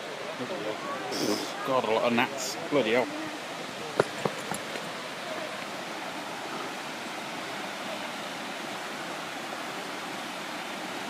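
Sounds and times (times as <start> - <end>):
large waterfall rushing: 0.0 - 11.0.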